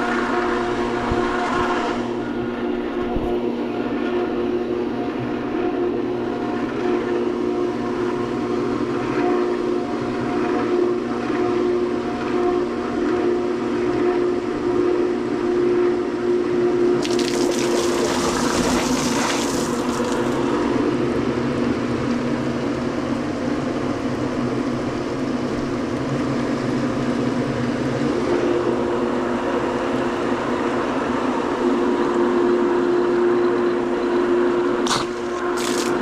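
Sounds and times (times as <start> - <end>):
pool pump whining: 16.9 - 22.8, 33.6 - 36.0
water churning and rushing: 17.0 - 20.6, 34.8 - 36.0.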